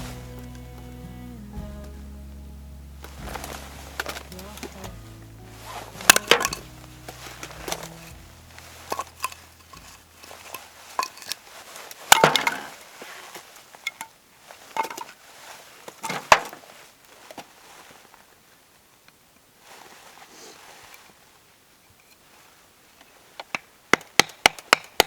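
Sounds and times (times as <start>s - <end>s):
background music low notes: 0.0s - 10.9s
small hard objects clinking: 5.5s - 11.4s, 12.0s - 12.8s.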